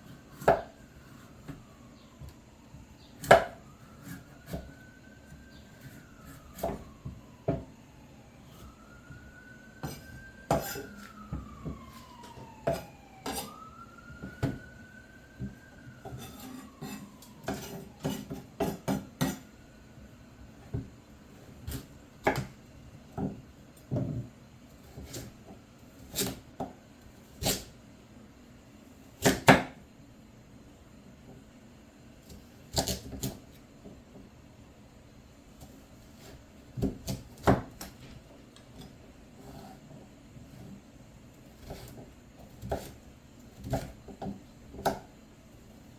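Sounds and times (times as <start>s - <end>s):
faint siren wailing: 0.0s - 27.1s.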